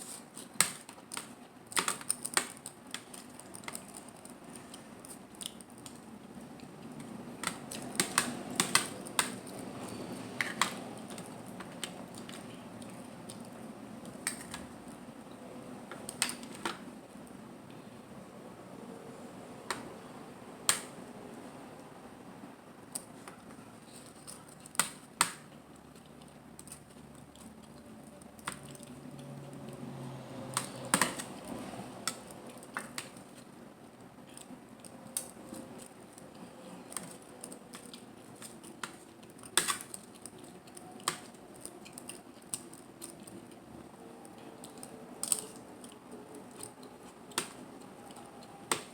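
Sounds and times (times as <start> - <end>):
mouth and handling sounds: 0.0 - 17.8, 22.8 - 29.9
shells clicking and cracking: 0.4 - 15.3, 22.9 - 29.8, 30.5 - 33.4, 34.0 - 48.9.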